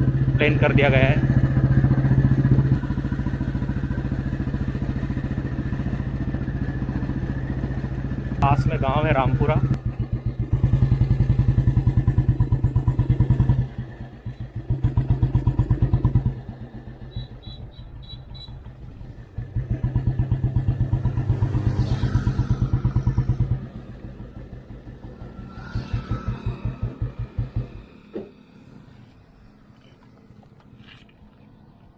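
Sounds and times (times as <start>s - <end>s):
motorcycle engine thumping: 22.3s - 28.4s.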